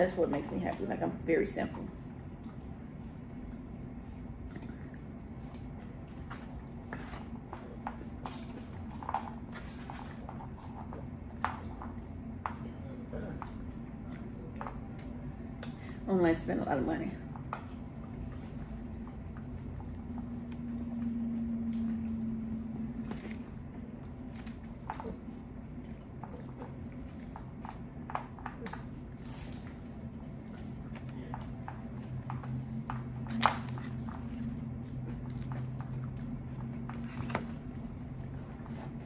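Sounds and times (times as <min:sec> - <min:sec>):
steady low hum: 0:00.0 - 0:39.0
person chewing: 0:21.6 - 0:39.0.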